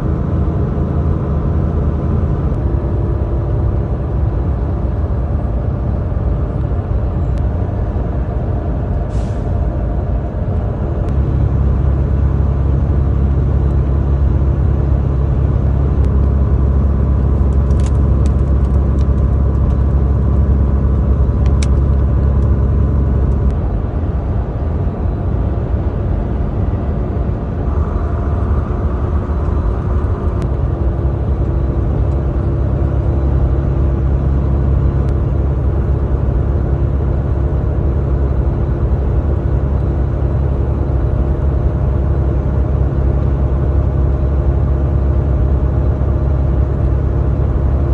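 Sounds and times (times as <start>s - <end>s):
truck engine rumbling: 0.0s - 43.1s
road noise inside cab: 0.0s - 47.9s
sharp clicks: 17.0s - 22.6s.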